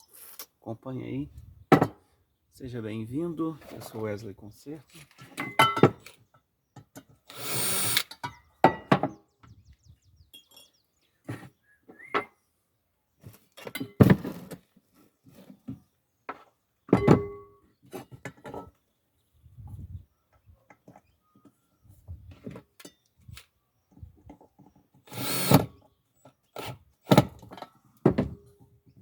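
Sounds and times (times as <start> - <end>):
electric drill running: 7.3 - 8.1, 25.1 - 25.6.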